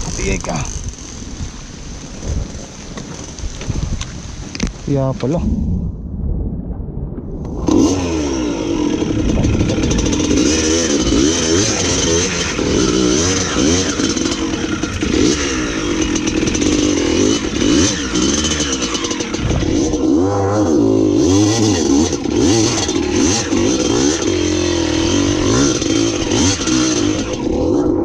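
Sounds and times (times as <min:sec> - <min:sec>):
dirt bike engine revving: 0:07.6 - 0:28.0.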